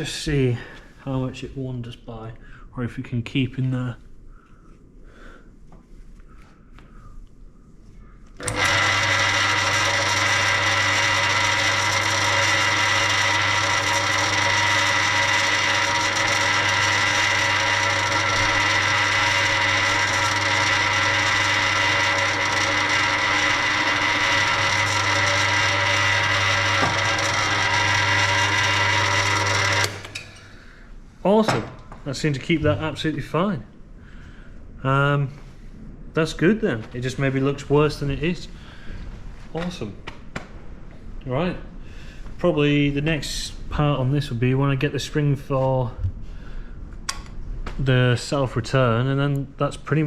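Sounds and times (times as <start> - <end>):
drill press humming and whining: 8.3 - 31.0.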